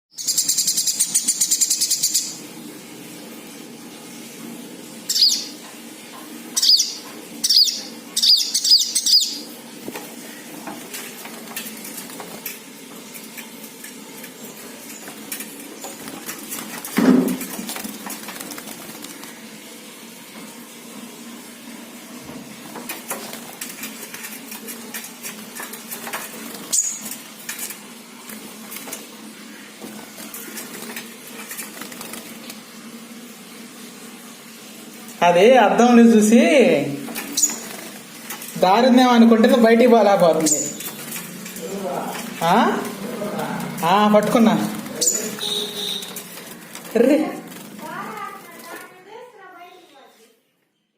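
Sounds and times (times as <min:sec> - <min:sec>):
small bird wings flapping: 0:10.8 - 0:19.8, 0:22.6 - 0:29.2, 0:29.9 - 0:32.8, 0:44.4 - 0:49.1.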